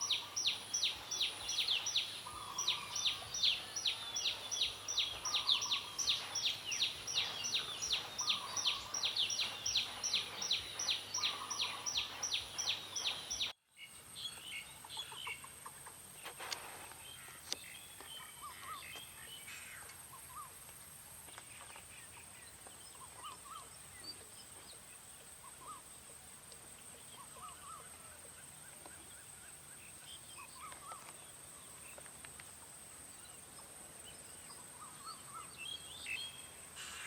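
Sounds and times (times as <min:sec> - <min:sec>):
soft bird calls: 0:00.0 - 0:13.6.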